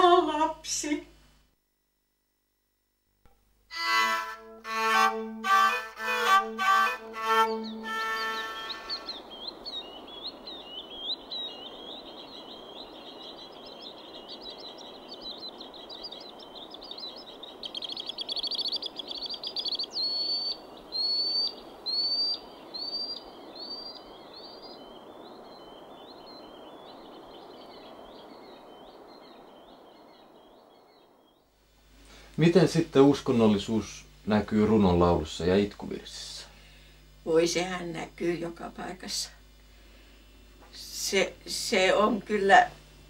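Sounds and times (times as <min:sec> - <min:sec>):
background hiss: 0:00.0 - 0:43.0
small birds singing: 0:04.7 - 0:31.5.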